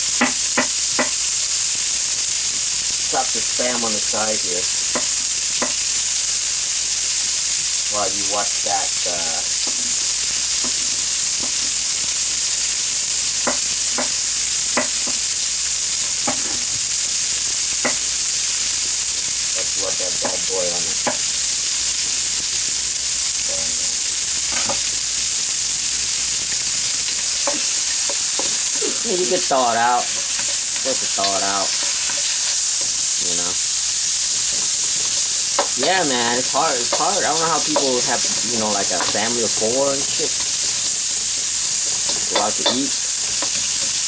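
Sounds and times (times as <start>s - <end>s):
meat sizzling in a wok: 0.0s - 44.0s.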